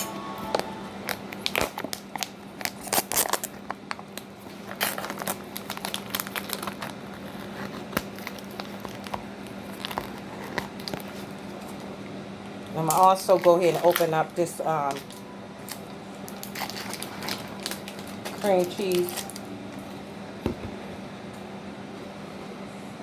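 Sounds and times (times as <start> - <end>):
low hum: 0.0 - 2.0
packaging crinkling: 1.0 - 11.9, 12.8 - 19.5.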